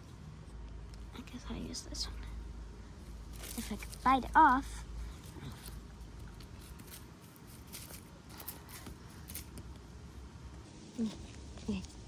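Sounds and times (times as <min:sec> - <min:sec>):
plant leaves rustling and snapping: 0:03.2 - 0:09.9.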